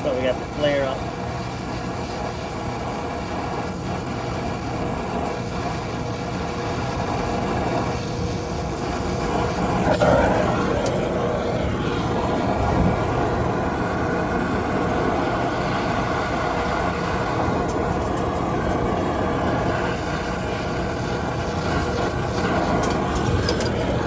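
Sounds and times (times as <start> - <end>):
steady mechanical hum: 0.0 - 24.0
wind buffeting microphone: 7.4 - 24.0.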